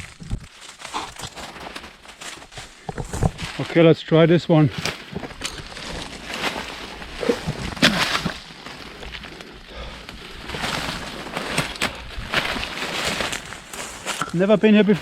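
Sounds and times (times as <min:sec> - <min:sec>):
footsteps through dry leaves: 0:00.0 - 0:15.0
twigs crackling: 0:00.0 - 0:15.0.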